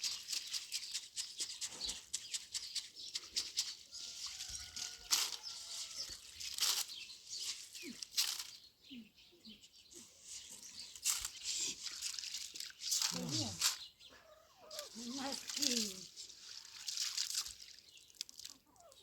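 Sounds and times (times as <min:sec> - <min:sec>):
rustling and crackling: 0:00.0 - 0:08.7, 0:10.0 - 0:13.9, 0:14.7 - 0:19.0.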